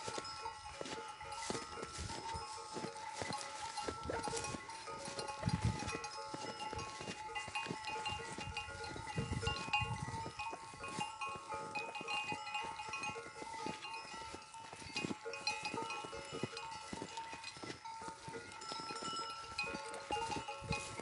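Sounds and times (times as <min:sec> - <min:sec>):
goats and sheep: 0:00.0 - 0:21.0
livestock neck bells clinking: 0:00.0 - 0:21.0.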